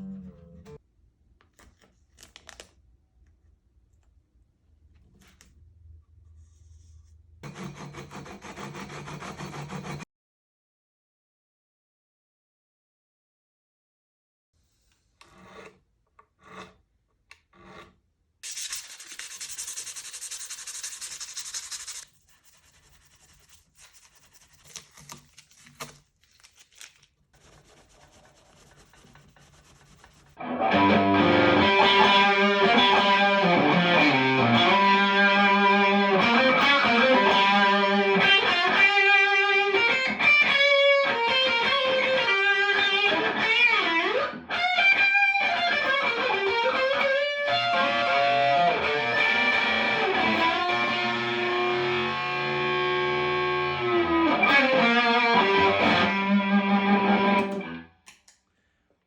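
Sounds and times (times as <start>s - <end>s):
rasping sanding: 7.5s - 10.0s, 18.4s - 25.7s, 27.4s - 30.4s
distorted electric guitar music: 30.4s - 57.8s.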